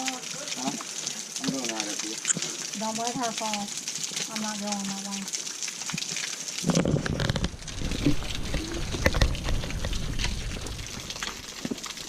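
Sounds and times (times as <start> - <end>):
running water hissing: 0.0 - 12.0
low rumbling: 6.7 - 11.6.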